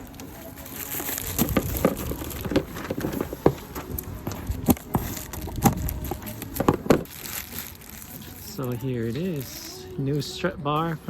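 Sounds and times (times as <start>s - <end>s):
cardboard box being opened: 0.0s - 8.3s.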